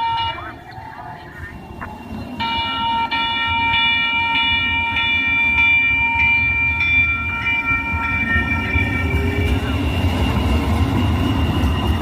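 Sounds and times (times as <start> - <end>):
light rail train rumble: 0.0 - 12.0.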